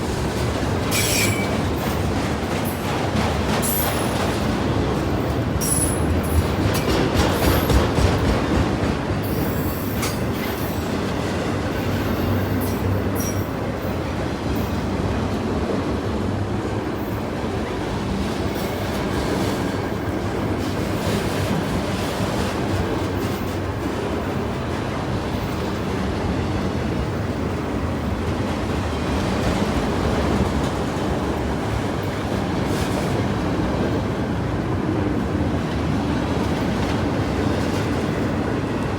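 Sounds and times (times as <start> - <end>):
train wheels rumbling on rail: 0.0 - 38.9
high-pitched wheel squeals: 0.9 - 1.6.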